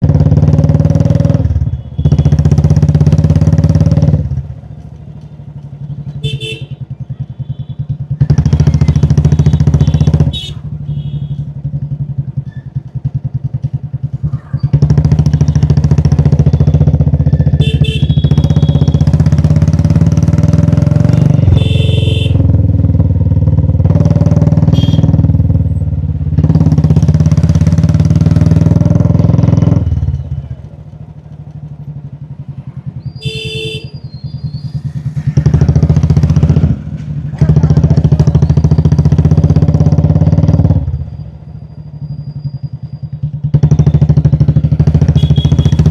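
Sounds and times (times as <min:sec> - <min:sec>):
motorcycle engine thumping: 0:34.6 - 0:39.8.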